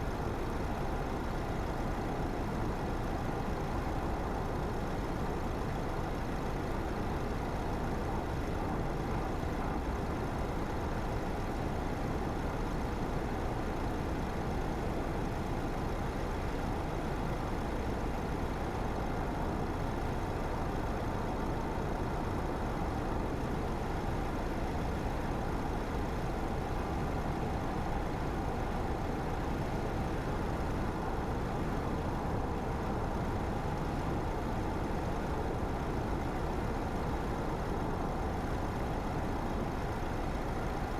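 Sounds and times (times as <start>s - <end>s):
car engine and tyre hum: 0.0s - 40.9s.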